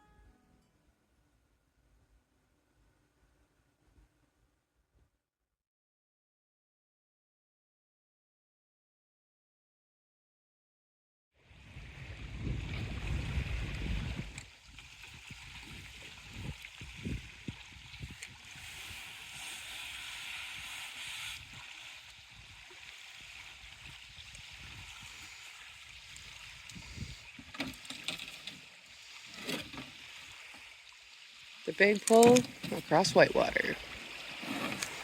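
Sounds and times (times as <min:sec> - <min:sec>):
wind buffeting microphone: 0:11.5 - 0:19.0, 0:23.5 - 0:27.4
water splashing along canoe hull: 0:11.7 - 0:35.0.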